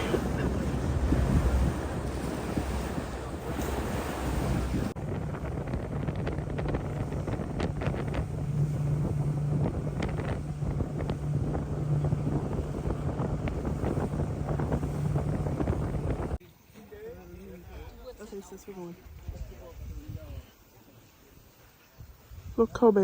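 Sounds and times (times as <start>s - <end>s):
boat motor running: 0.0s - 16.4s
wind buffeting microphone: 0.0s - 16.4s, 19.0s - 20.5s.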